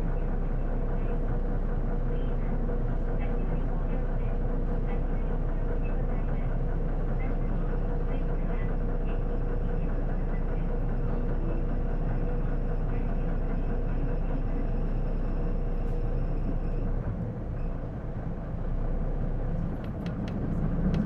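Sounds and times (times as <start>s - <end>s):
bus engine and drivetrain noise: 0.0s - 21.0s.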